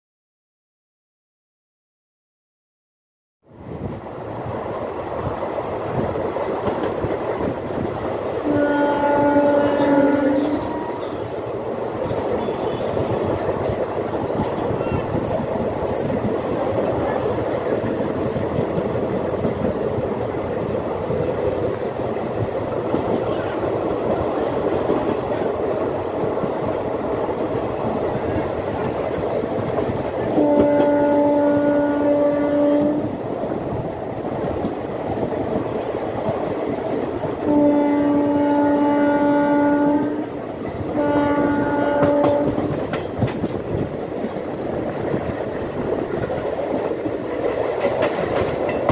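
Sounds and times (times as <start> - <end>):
train wheels clattering on track: 5.0 - 38.6, 39.5 - 48.9
locomotive horn blasts: 8.4 - 10.9, 30.4 - 33.1, 37.4 - 40.2, 40.9 - 42.7.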